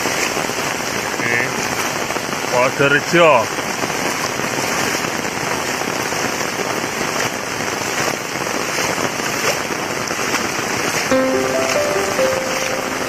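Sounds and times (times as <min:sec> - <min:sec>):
heavy rain pelting down: 0:00.0 - 0:13.0
music notes: 0:11.1 - 0:13.0.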